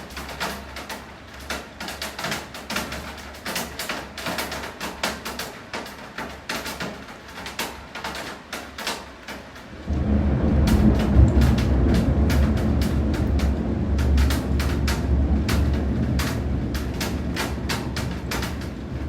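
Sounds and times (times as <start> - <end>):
raindrops tapping on hard surface: 0.1 - 19.0
low rumble of thunder: 9.7 - 19.0.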